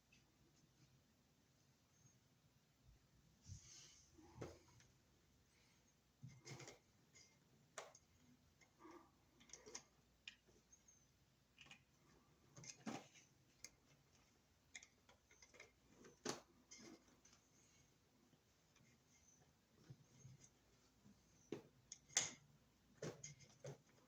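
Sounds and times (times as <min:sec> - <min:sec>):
clicks and taps of wires and tools: 0:06.2 - 0:08.8, 0:09.4 - 0:10.6, 0:21.5 - 0:24.0.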